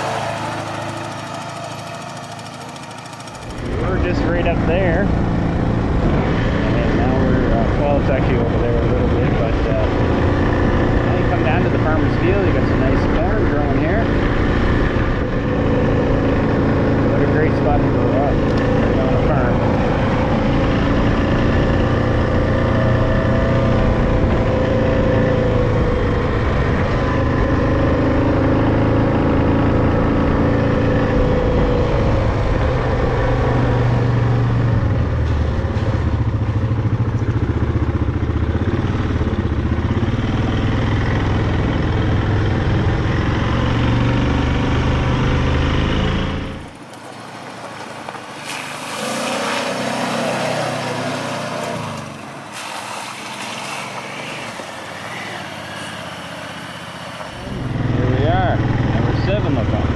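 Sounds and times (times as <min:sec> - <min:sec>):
atv engine running: 0:00.0 - 0:59.9
faint engine or wind: 0:00.0 - 0:59.9.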